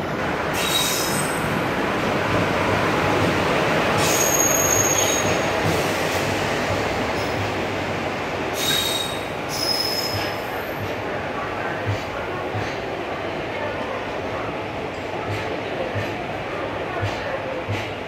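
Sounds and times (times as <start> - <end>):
train coaches rolling past: 0.0 - 18.0
wheel and brake squeals: 0.6 - 1.4, 4.0 - 5.5, 8.6 - 10.3.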